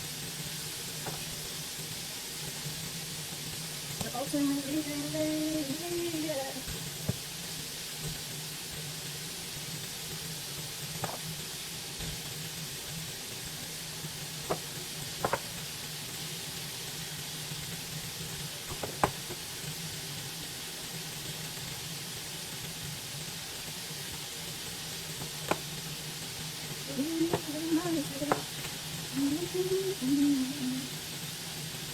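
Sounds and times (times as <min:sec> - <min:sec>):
food sizzling in a frying pan: 0:00.0 - 0:31.9
cookware knocks: 0:14.5 - 0:15.5, 0:18.7 - 0:19.3.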